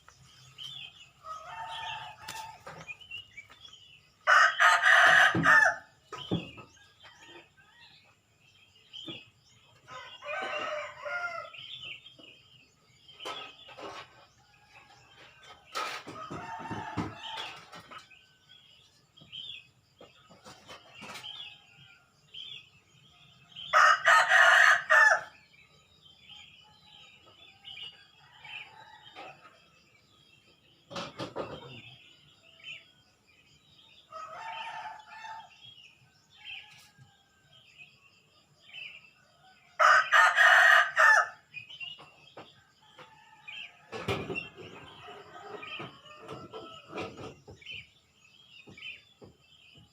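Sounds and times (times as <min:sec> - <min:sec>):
small birds chirping: 0:00.0 - 0:49.9
rooster crowing: 0:04.3 - 0:05.9, 0:09.9 - 0:11.6, 0:23.7 - 0:25.3, 0:34.1 - 0:35.6, 0:39.8 - 0:41.4.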